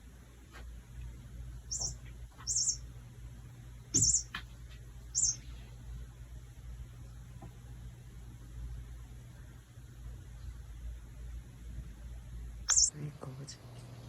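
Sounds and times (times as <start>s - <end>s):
toy bird chirps: 1.7s - 2.9s, 4.0s - 4.4s, 5.2s - 5.5s, 12.7s - 12.9s.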